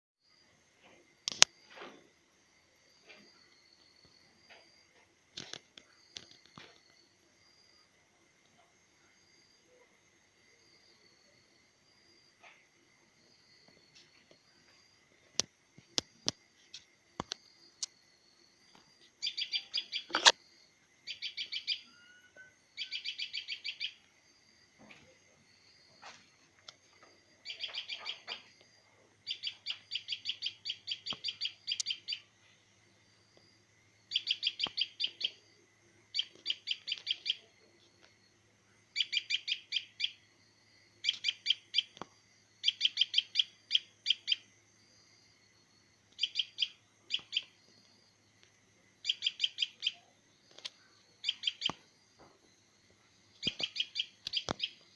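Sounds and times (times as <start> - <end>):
small bird chirping: 18.7 - 24.1, 26.1 - 28.6, 29.2 - 32.6, 34.0 - 38.3, 38.9 - 40.3, 41.0 - 44.5, 46.1 - 48.0, 49.0 - 52.4, 53.3 - 54.9.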